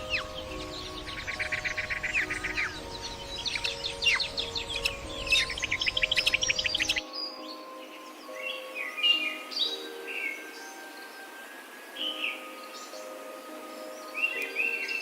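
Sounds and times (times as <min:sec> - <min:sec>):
rapid bird trill: 0:00.0 - 0:07.4.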